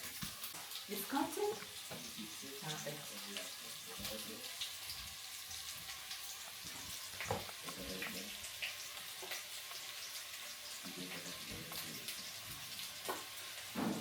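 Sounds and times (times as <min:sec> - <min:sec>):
food sizzling in hot oil: 0:00.0 - 0:14.0
crackles and pops of oil: 0:05.9 - 0:09.9.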